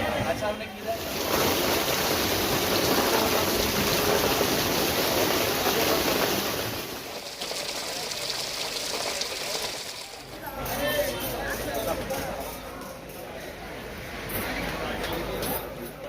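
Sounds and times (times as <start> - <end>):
rushing water from heavy rain: 0.8 - 10.4.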